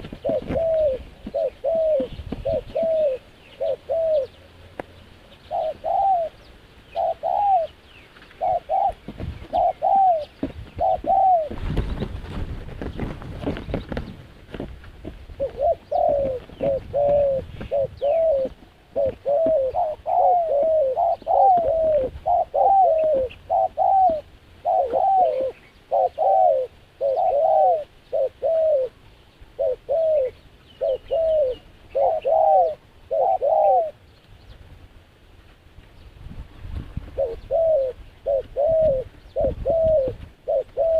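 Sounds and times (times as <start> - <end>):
dove cooing: 0.0 - 34.0, 37.0 - 40.9.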